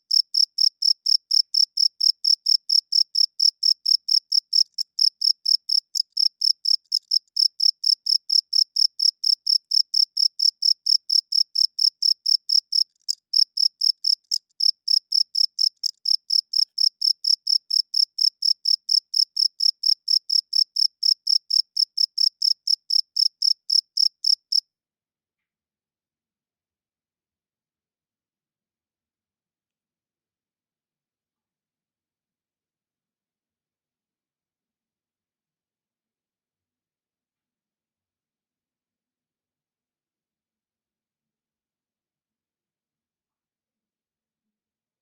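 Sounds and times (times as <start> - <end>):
cricket chirping: 0.1 - 24.6.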